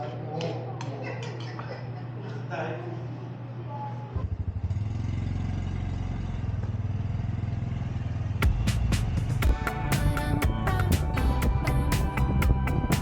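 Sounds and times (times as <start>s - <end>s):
motorcycle engine running: 4.2s - 13.0s
music with percussive hits: 8.4s - 13.0s.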